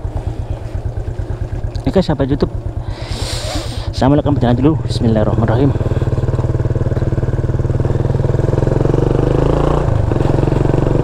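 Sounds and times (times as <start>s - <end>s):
motorcycle engine riding off: 0.0s - 11.0s.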